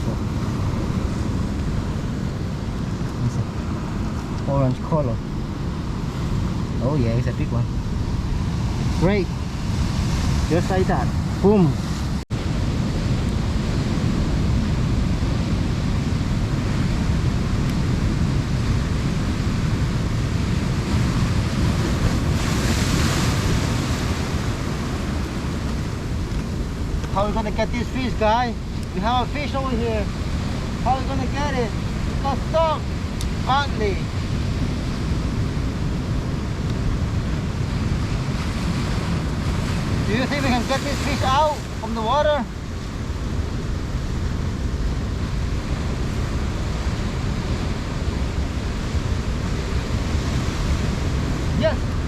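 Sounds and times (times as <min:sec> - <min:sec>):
surf washing against rocks: 0:00.0 - 0:52.0
wind buffeting microphone: 0:00.0 - 0:52.0.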